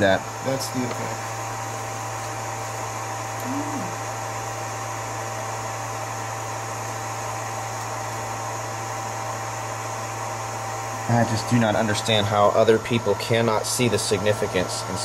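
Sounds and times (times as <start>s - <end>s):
mechanical hum and hiss: 0.0s - 15.0s
murmured voice: 3.4s - 4.0s.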